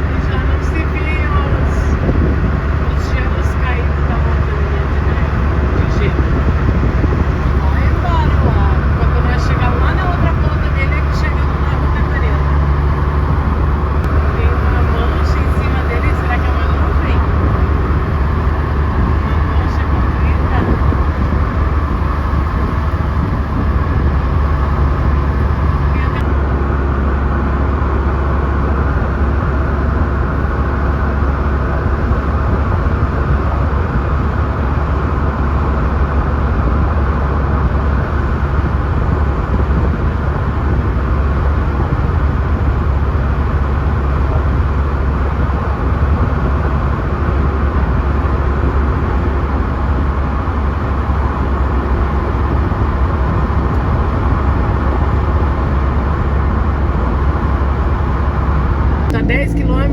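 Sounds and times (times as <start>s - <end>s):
road and wind noise in vehicle: 0.0s - 59.9s.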